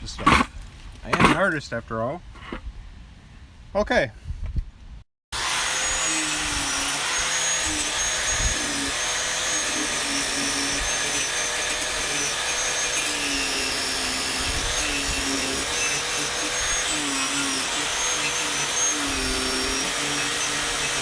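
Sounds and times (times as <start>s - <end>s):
small electric motor whining: 5.4s - 21.0s.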